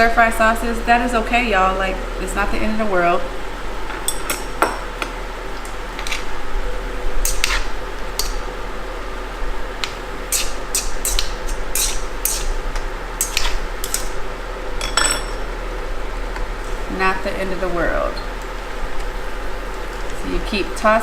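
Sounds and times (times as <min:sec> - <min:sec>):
food sizzling: 0:00.0 - 0:21.0
utensil scraping a skillet: 0:10.3 - 0:12.6.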